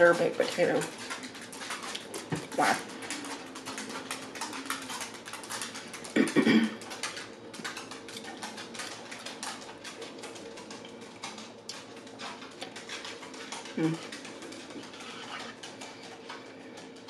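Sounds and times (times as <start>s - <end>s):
chewing and lip-smacking: 0.1s - 17.0s
hummed voice: 13.8s - 14.1s.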